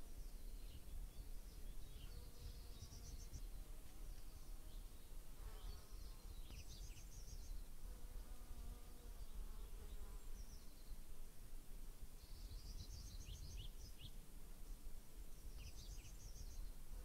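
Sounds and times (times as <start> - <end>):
small bird chirping: 0.0 - 7.7, 12.2 - 14.2, 15.4 - 16.8.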